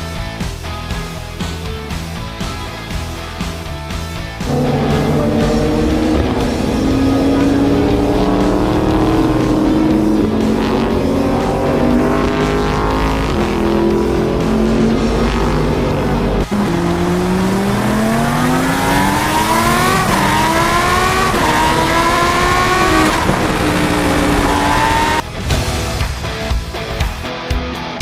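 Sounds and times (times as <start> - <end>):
racing car engines: 0.0 - 27.3
car accelerating through gears: 4.4 - 25.2.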